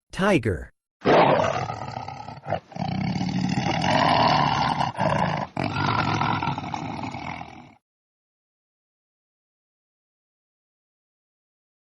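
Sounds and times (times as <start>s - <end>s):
tiger roaring: 1.0s - 7.8s.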